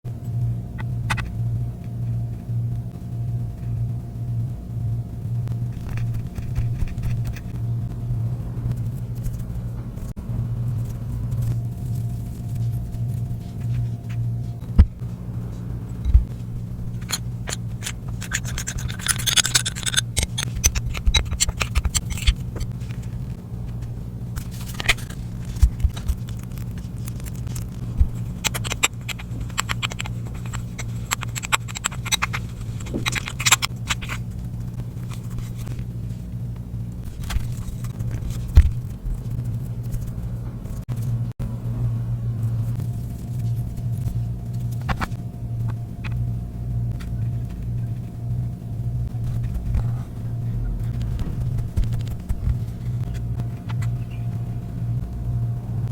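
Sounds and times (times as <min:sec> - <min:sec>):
steady low hum: 0:00.0 - 0:55.9
utensil scraping slime: 0:16.2 - 0:40.3.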